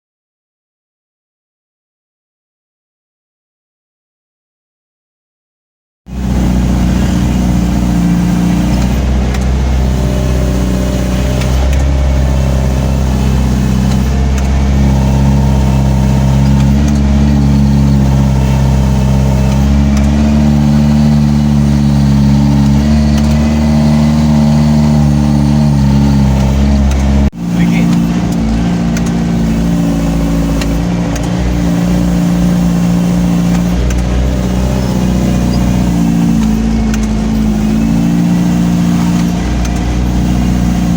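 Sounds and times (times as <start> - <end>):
diesel truck exhaust brake droning: 6.1 - 40.9.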